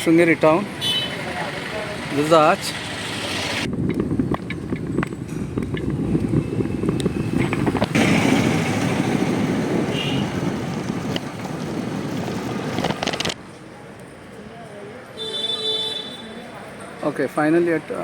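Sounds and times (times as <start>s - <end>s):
road traffic: 0.0s - 18.0s
wind buffeting microphone: 2.8s - 13.4s.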